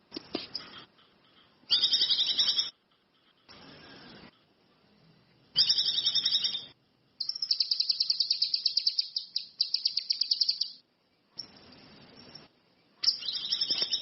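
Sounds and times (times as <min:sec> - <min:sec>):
songbird chattering and trilling: 0:01.7 - 0:02.7, 0:05.6 - 0:10.8, 0:12.2 - 0:14.0.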